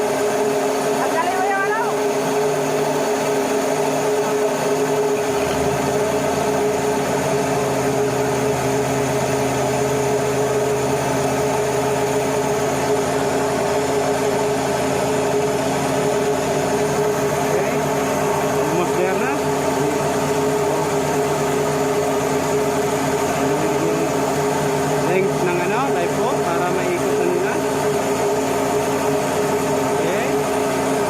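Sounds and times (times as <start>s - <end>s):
ship machinery drone: 0.0s - 31.0s.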